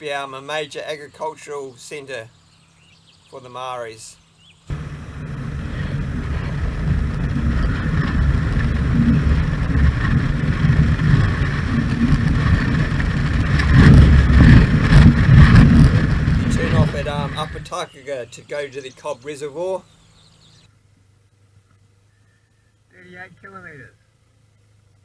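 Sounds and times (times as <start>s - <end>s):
motorcycle engine droning: 4.7s - 17.7s.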